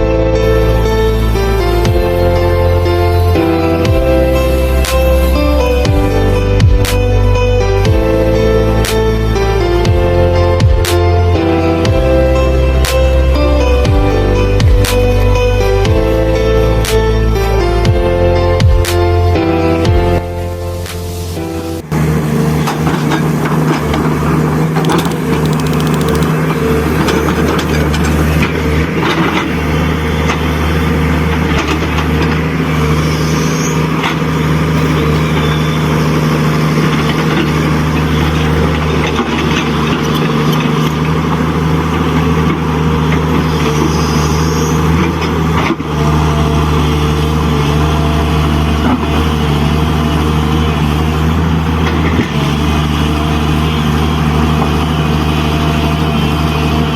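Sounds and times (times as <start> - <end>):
diesel truck engine drone: 0.0 - 56.9.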